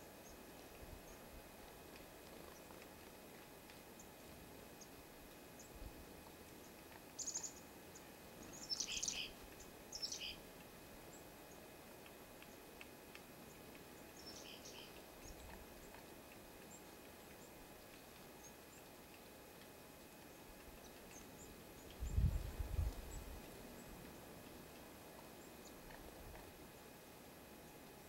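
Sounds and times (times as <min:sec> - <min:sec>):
faint background hiss: 0:00.0 - 0:28.0
small birds chirping: 0:05.6 - 0:10.4, 0:13.4 - 0:19.0, 0:20.3 - 0:22.4.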